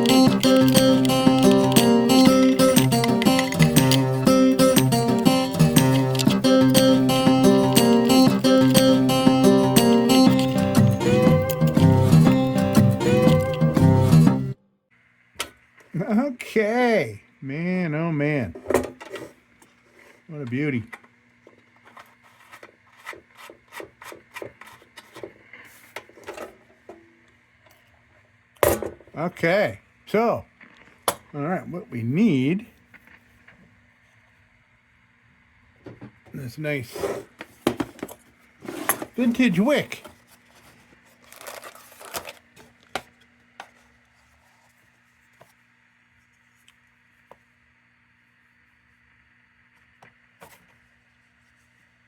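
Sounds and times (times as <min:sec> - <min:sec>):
lantern tin parts clicking: 0:00.0 - 0:13.6.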